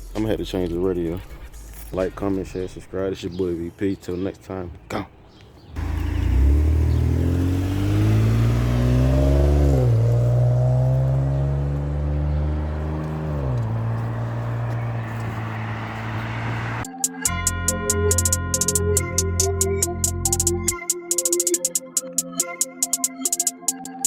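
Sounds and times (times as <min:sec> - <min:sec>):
car exhaust accelerating: 0:05.7 - 0:16.8.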